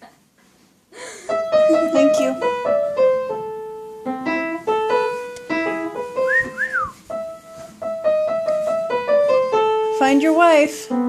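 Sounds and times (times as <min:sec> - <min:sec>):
piano music: 0:01.3 - 0:11.0
cockatiel whistling: 0:06.2 - 0:07.0.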